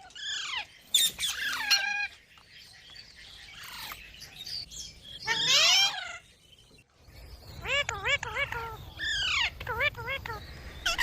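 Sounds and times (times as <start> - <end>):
parrot screeching calls: 0.0 - 2.2, 5.2 - 6.2.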